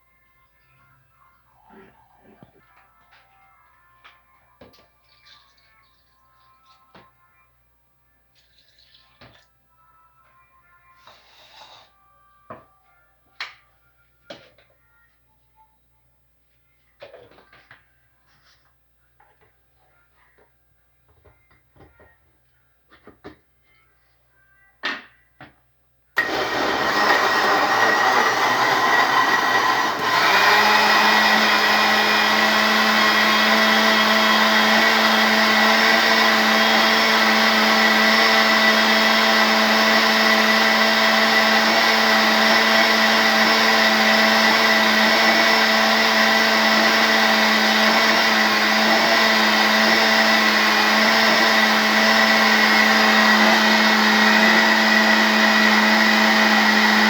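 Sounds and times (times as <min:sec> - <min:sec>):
electric blender running: 0:26.2 - 0:57.0.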